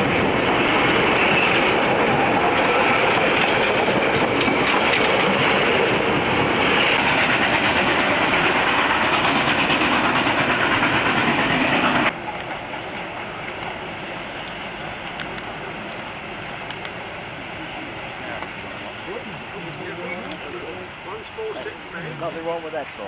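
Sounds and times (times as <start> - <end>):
train rumbling by: 0.0 - 23.0
wheels clicking over rail joints: 2.1 - 16.9.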